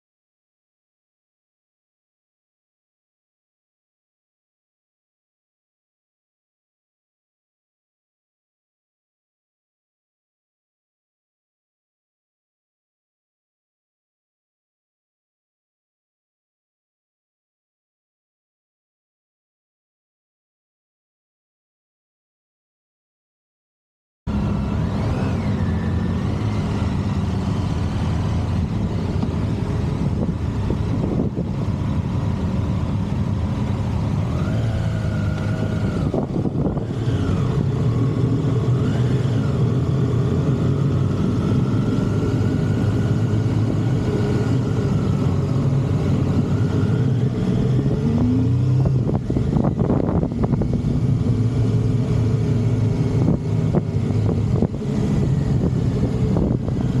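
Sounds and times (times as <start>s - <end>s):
motorcycle engine running: 24.3s - 57.0s.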